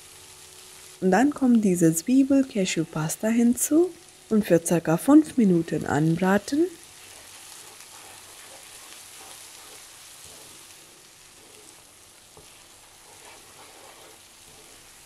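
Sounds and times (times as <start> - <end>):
paste sizzling in a pan: 0.0 - 15.0
wooden spatula scraping a pan: 6.4 - 15.0.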